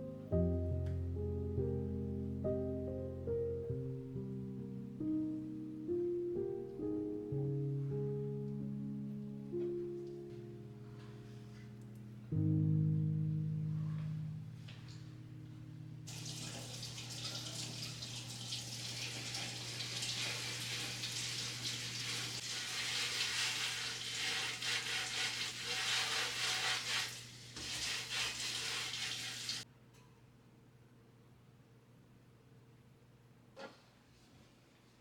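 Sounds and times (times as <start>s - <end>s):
tap water running into sink: 16.1s - 29.6s.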